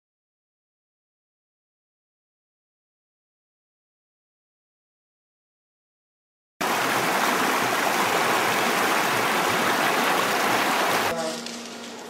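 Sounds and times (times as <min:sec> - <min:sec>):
rushing water: 0:06.6 - 0:11.1.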